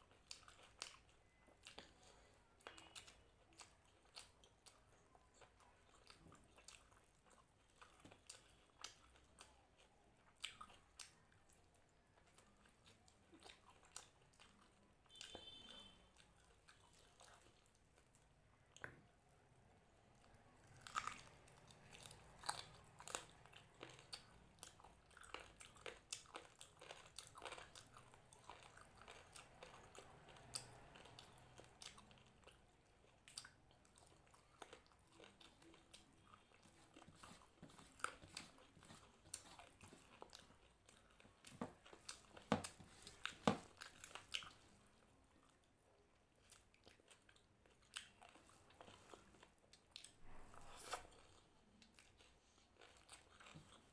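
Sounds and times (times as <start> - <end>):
person chewing crunchy food: 0.0 - 19.2, 20.1 - 53.9.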